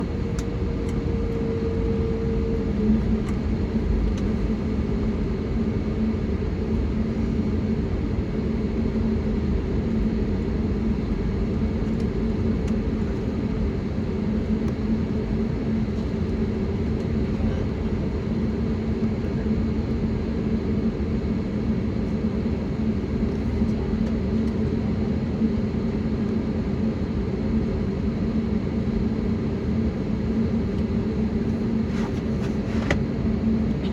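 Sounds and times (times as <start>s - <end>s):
airplane cabin engine rumble: 0.0s - 33.9s.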